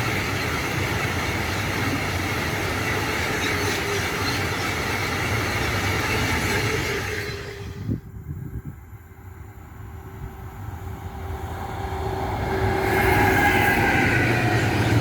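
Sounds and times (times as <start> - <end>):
train passing on rails: 0.0 - 15.0.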